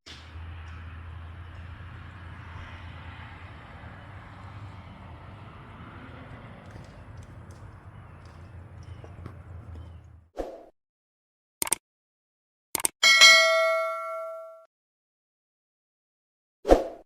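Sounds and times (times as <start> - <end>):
short clicks: 12.8 - 13.0
loud bell-like ding: 13.0 - 14.7.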